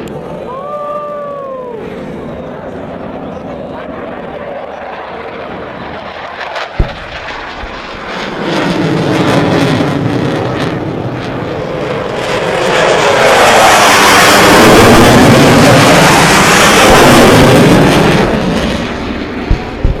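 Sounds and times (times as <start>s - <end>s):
fighter jet flying past: 1.2s - 20.0s
sharp knock: 6.8s - 7.2s.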